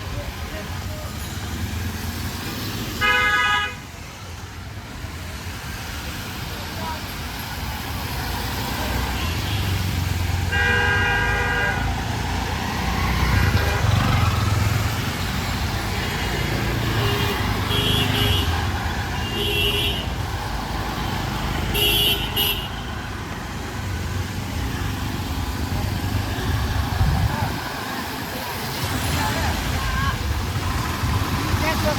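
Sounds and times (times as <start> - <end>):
traffic engine rumble: 0.0 - 31.9
vehicle horn long blast: 3.0 - 3.8, 10.5 - 11.8, 21.7 - 22.8.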